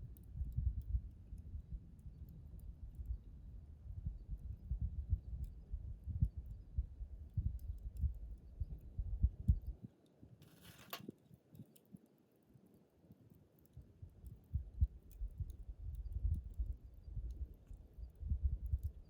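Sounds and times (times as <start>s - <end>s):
campfire crackling: 10.4s - 19.0s.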